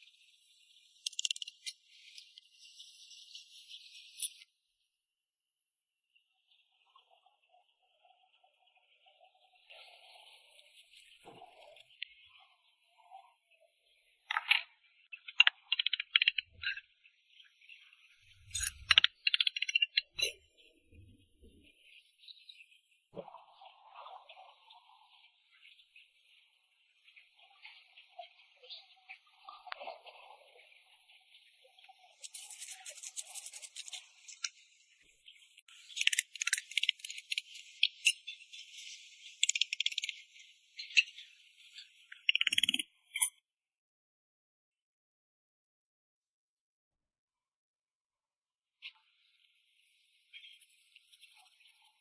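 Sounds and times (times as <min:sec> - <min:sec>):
small hard objects clicking and rattling: 0:01.0 - 0:01.7, 0:15.3 - 0:16.8, 0:18.5 - 0:20.3, 0:35.8 - 0:38.2, 0:39.4 - 0:40.1, 0:42.2 - 0:42.8.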